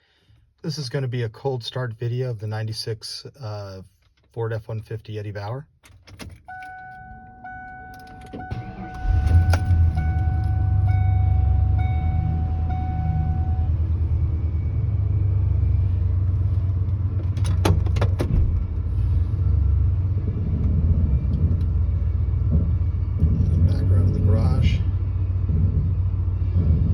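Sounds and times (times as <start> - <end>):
dashboard warning chime: 6.4 - 14.0
truck engine idling: 6.8 - 26.9.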